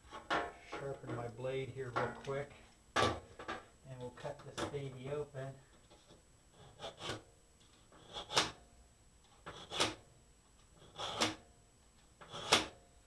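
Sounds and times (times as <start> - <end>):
knife scraping on sharpener: 6.0 - 7.2, 8.0 - 8.6, 9.4 - 10.0, 10.8 - 11.4, 12.2 - 12.7.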